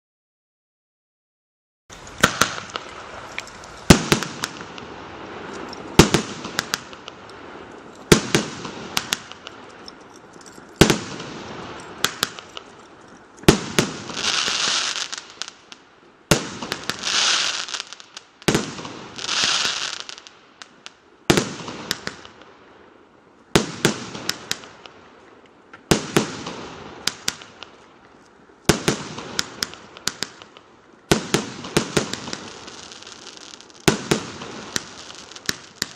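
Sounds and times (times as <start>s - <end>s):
firework reports: 1.9s - 9.6s
firework crackling and hiss: 1.9s - 9.8s, 10.8s - 12.7s, 13.5s - 22.6s, 23.5s - 25.2s, 25.8s - 28.0s, 28.6s - 35.9s.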